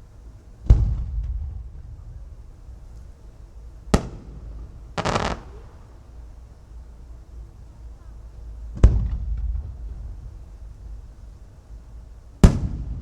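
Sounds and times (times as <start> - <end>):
firework boom with rumbling echo: 0.6 - 2.3, 3.9 - 6.2
firework crackle: 2.5 - 6.6
firework sharp crack: 2.8 - 6.4, 12.4 - 13.0.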